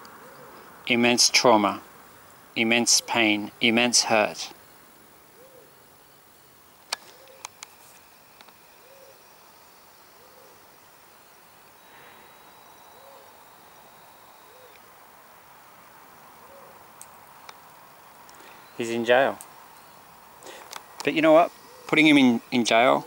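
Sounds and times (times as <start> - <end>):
soft hooting call: 7.0 - 10.8, 11.4 - 15.1, 15.9 - 17.0, 21.2 - 22.6.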